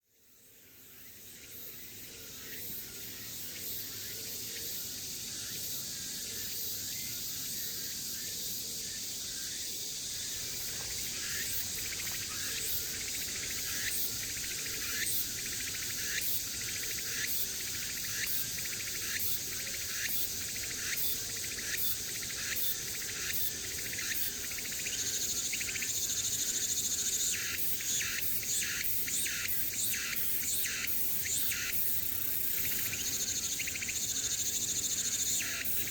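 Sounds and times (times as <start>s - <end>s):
cicada pulses: 0.4s - 35.9s
cicada buzzing: 10.2s - 21.0s.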